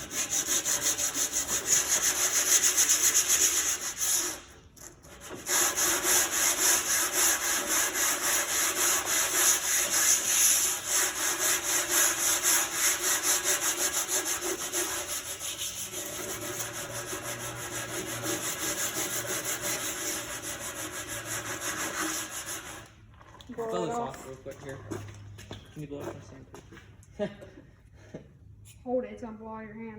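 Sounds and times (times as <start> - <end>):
sandpaper rubbing on sheet metal: 0.0 - 22.9.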